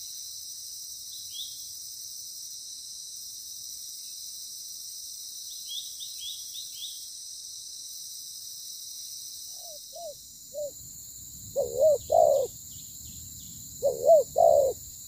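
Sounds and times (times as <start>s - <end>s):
insects droning: 0.0s - 15.0s
small bird chirps: 11.6s - 14.8s.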